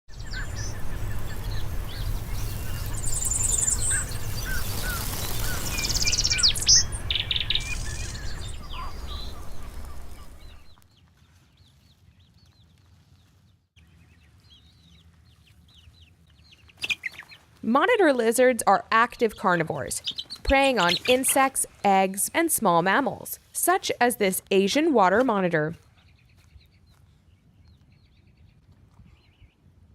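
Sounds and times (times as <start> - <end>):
low outdoor rumble: 0.1 - 10.8
birds chirping: 0.1 - 28.5.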